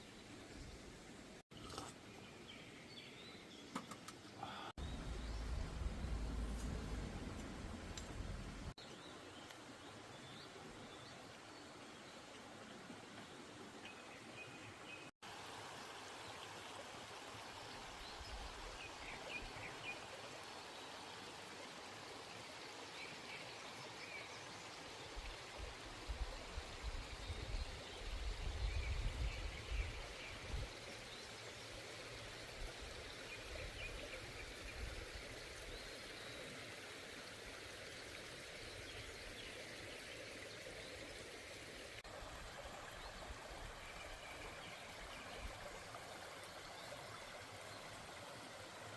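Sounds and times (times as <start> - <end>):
stream flowing: 4.2 - 48.9
low uneven rumbling: 4.8 - 8.7.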